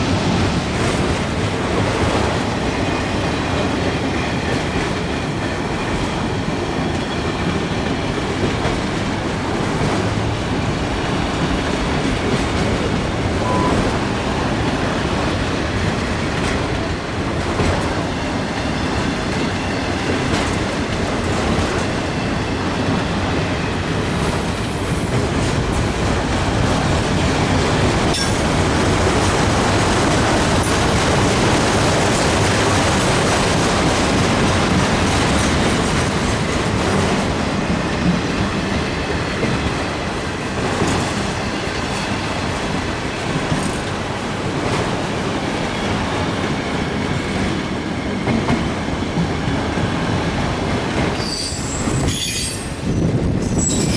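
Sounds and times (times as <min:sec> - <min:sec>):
freight train rumbling: 0:00.0 - 0:53.9
faint wheel squeal: 0:51.2 - 0:52.7.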